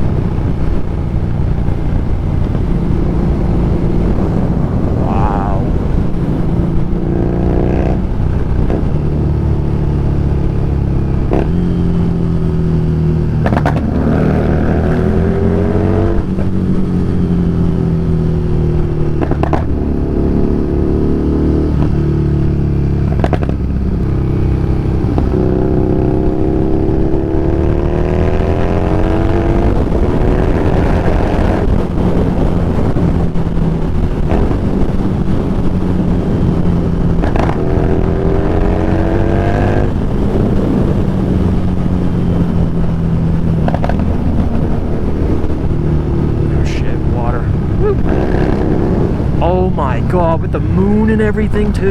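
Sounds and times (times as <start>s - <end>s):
motorcycle engine running: 0.0s - 51.9s.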